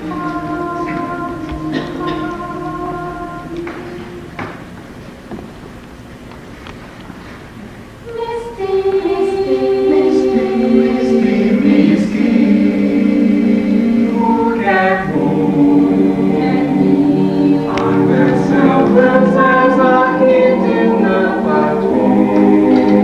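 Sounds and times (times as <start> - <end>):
choir singing sustained chords: 0.0 - 5.0, 8.0 - 23.0.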